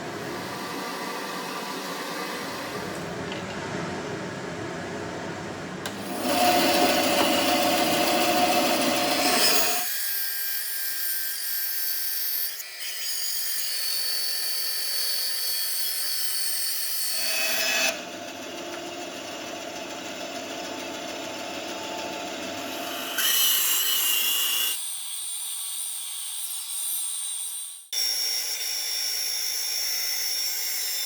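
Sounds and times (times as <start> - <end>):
power tool working: 5.8 - 9.9, 17.9 - 24.7.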